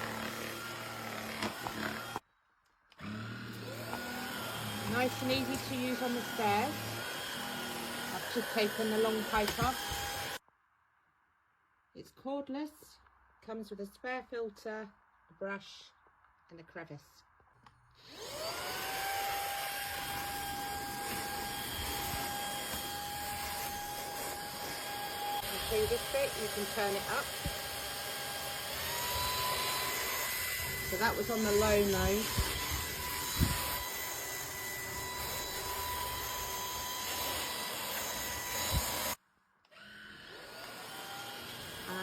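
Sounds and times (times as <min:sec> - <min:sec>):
vacuum cleaner motor whining: 0:00.0 - 0:02.2, 0:03.0 - 0:10.4, 0:18.0 - 0:42.0.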